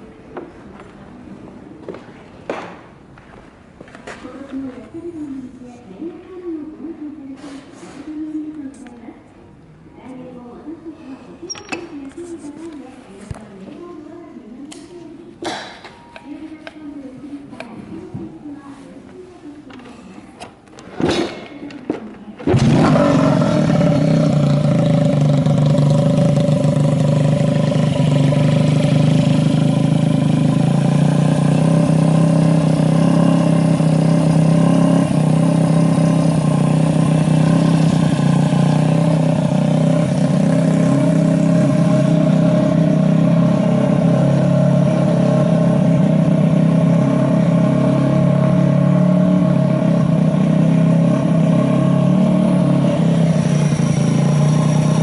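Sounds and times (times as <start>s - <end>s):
motorcycle engine starting and running: 22.4s - 55.0s.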